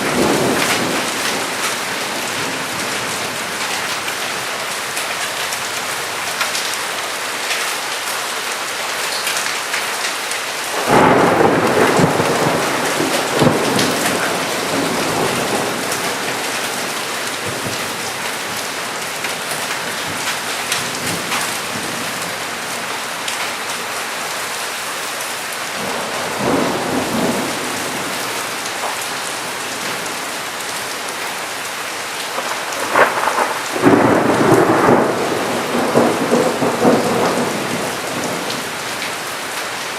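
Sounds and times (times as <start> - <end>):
heavy rainfall: 0.0 - 39.9
thunder: 10.8 - 17.9, 25.8 - 29.0, 32.3 - 39.0.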